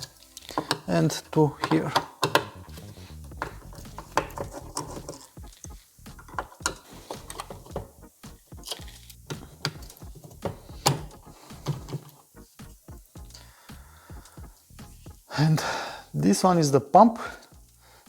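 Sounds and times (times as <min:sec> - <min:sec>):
screwdriver clicking on screws: 0:00.0 - 0:02.6, 0:06.2 - 0:07.9
plastic parts being handled: 0:00.0 - 0:08.0, 0:08.6 - 0:12.3.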